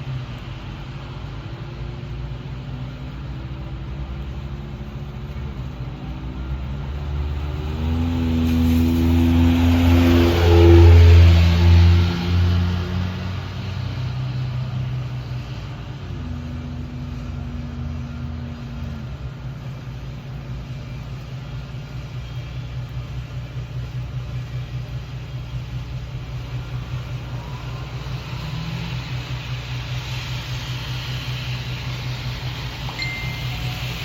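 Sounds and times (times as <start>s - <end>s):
high steady tone: 32.9s - 34.0s.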